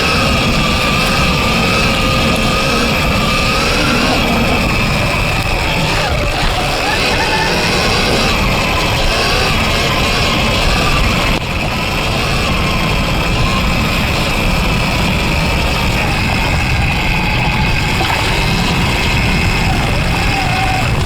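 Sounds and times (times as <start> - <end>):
electric motorbike motor whining: 0.0 - 21.0.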